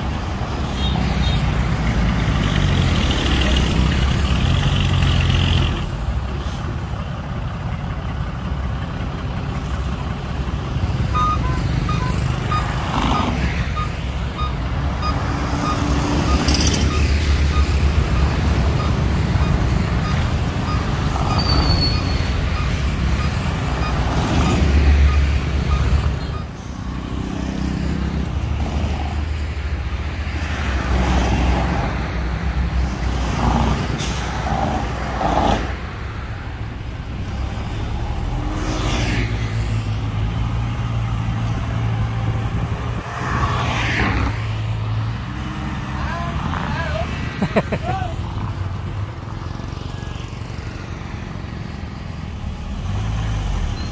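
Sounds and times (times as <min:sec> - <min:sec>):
diesel truck engine running: 0:01.5 - 0:13.0.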